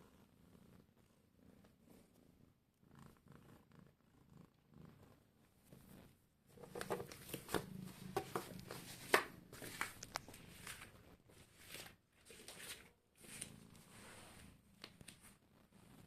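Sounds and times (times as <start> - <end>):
cat purring: 0.0 - 8.7, 13.1 - 16.0
rustling and scratching: 5.7 - 16.0.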